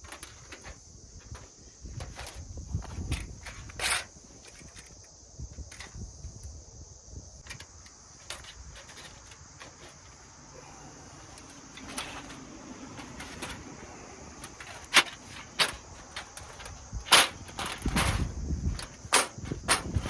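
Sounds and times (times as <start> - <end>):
insects chirping: 0.0 - 20.0
objects being handled: 7.4 - 20.0.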